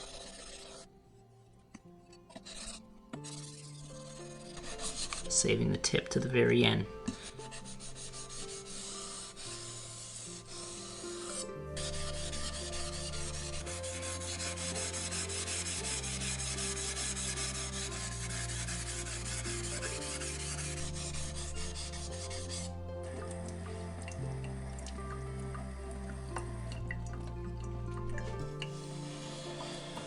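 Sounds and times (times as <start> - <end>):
background music with slow bass: 0.0 - 30.0
knife scraping on a water stone: 7.1 - 22.7.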